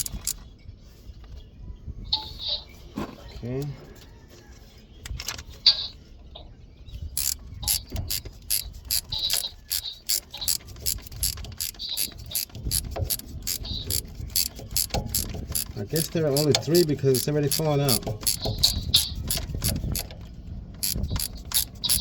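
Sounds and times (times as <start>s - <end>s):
ratchet wrench clicking: 0.0s - 0.4s, 7.2s - 20.2s, 20.8s - 22.0s.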